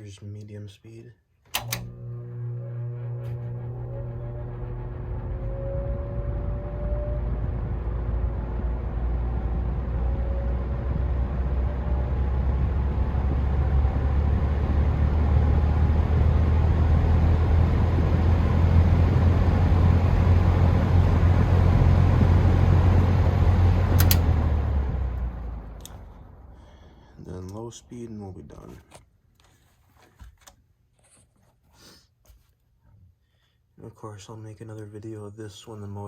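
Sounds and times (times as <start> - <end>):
box fan running: 1.5 - 27.4
sharp clicks: 24.0 - 24.3.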